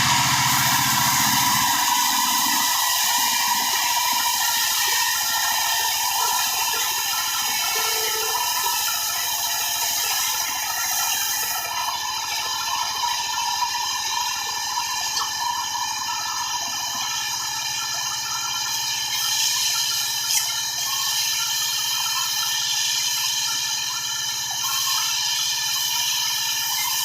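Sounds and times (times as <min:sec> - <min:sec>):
circular saw whining: 0:00.0 - 0:27.0.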